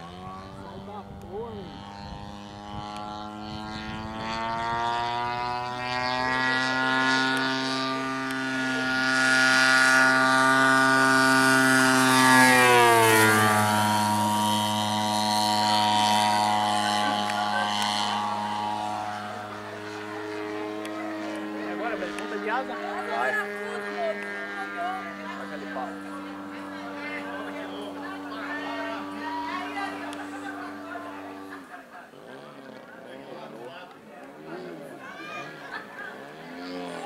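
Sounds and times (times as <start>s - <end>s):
model plane engine and propeller: 0.0s - 37.0s.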